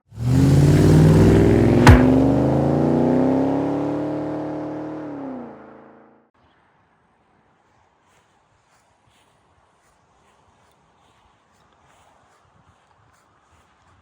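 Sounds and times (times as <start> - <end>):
car engine revving: 0.1 - 6.1
sharp crack: 1.7 - 2.6.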